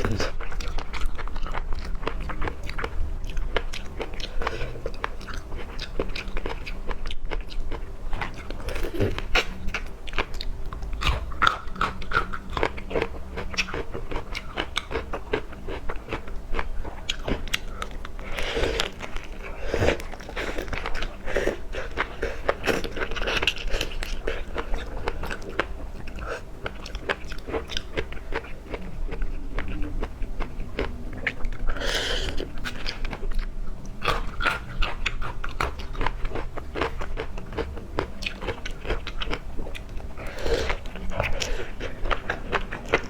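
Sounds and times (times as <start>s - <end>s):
person chewing seafood: 0.0s - 43.0s.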